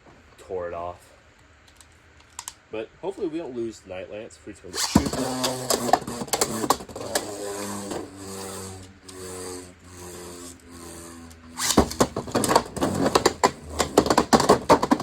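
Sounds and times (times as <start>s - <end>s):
spinning tops whirring in plastic stadium: 4.7s - 15.0s.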